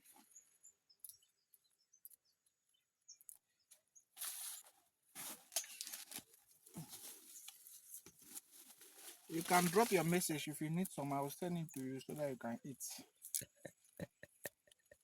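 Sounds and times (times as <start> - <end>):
rustling and crackling of plants: 3.3 - 13.6.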